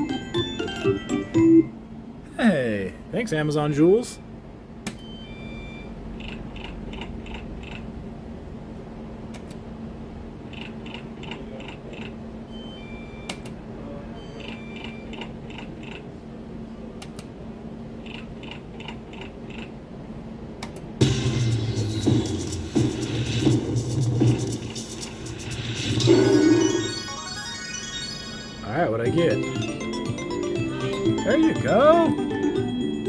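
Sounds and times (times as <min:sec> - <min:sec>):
electrical hum: 0:00.0 - 0:33.0
slot machine electronic blips: 0:21.0 - 0:33.0.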